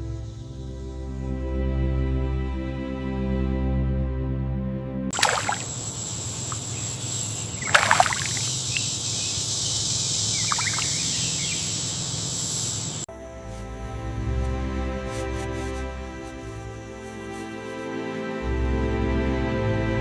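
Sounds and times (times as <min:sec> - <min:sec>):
soft music: 0:00.0 - 0:05.5, 0:13.1 - 0:20.0
short splashes: 0:05.1 - 0:06.8, 0:07.4 - 0:09.0, 0:10.3 - 0:11.7
water hiss: 0:05.2 - 0:13.1.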